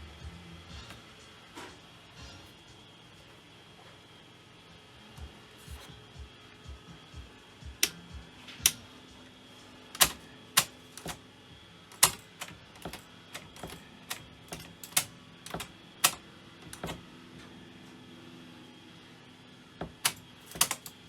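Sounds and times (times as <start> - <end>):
irregular sharp clicks and knocks: 10.0 - 11.2, 11.9 - 17.0, 19.8 - 21.0.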